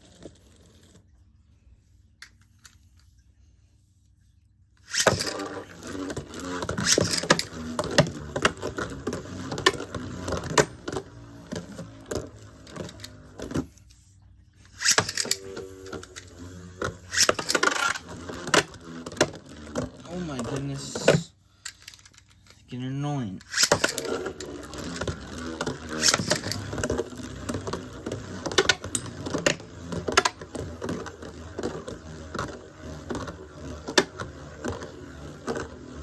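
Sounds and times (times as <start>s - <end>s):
spinning tops clattering: 4.8s - 10.8s, 14.7s - 22.2s, 23.4s - 32.1s
whirring spin of tops: 4.8s - 22.6s, 23.4s - 36.0s.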